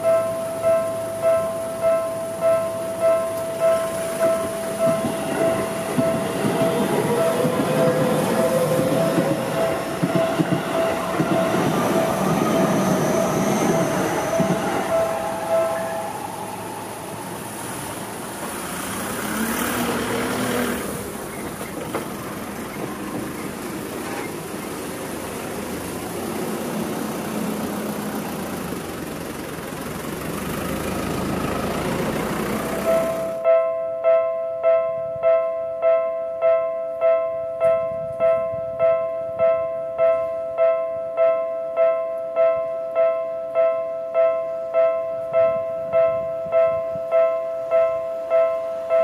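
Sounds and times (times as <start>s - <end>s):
train wheels rumbling: 0.0s - 33.4s
train whine: 0.0s - 34.0s
distant rail noise: 0.0s - 49.0s.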